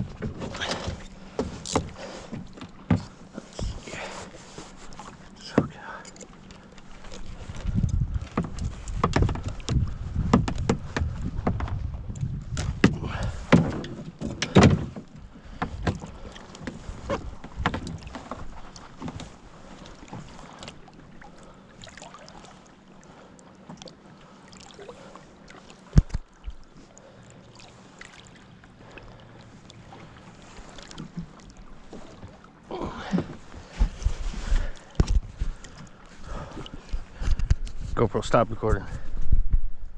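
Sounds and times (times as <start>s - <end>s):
knocks and clatter on kayak: 0.0s - 20.9s, 25.8s - 26.6s, 30.8s - 39.8s.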